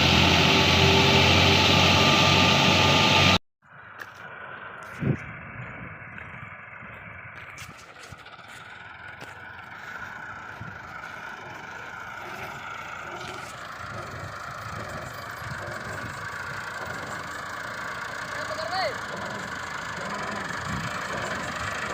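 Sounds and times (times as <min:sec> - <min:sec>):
machine engine running: 0:00.0 - 0:03.4, 0:08.0 - 0:21.9
clatter and rattling: 0:12.1 - 0:18.4, 0:19.0 - 0:21.9.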